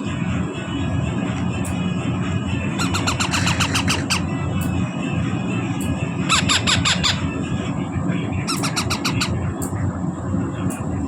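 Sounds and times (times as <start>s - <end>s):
steady low rumble: 0.0s - 11.0s
baby parrots squawking: 2.8s - 4.3s, 6.3s - 7.3s, 8.5s - 9.5s.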